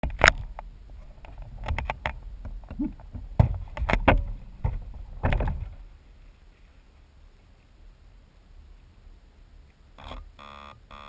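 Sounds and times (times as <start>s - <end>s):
knocks and rattles: 0.0s - 5.8s
low wind rumble: 0.0s - 10.4s.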